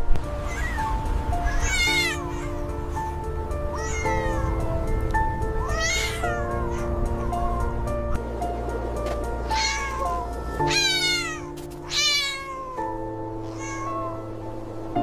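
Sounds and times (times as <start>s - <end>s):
background music: 0.0s - 15.0s
cat meowing: 0.4s - 4.6s, 5.6s - 7.9s, 9.4s - 14.3s.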